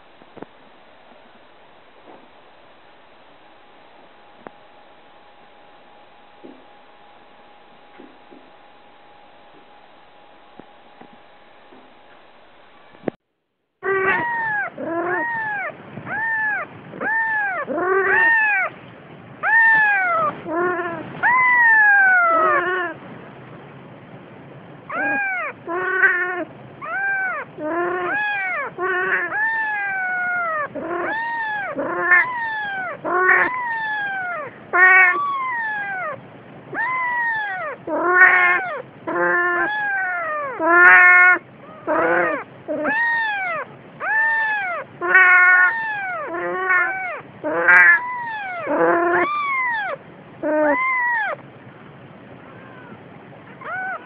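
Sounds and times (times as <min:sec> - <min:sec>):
cat meowing: 0:13.8 - 0:18.7, 0:19.4 - 0:23.0, 0:24.9 - 0:51.4, 0:52.5 - 0:54.0.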